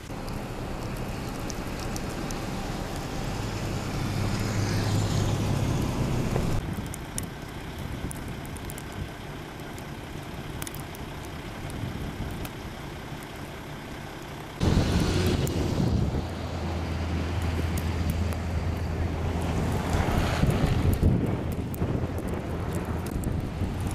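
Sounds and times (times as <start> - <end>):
vehicle passing on slushy road: 0.0 - 6.6, 14.6 - 23.9
road noise: 0.0 - 23.9
light ticks: 0.2 - 3.1.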